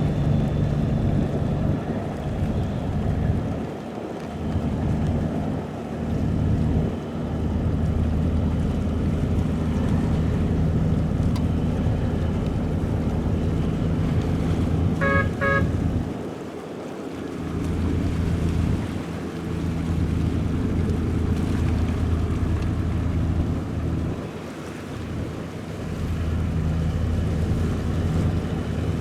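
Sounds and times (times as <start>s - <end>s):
boat engine droning: 0.0s - 29.0s
wind buffeting microphone: 0.0s - 29.0s
horn toots: 15.0s - 15.8s.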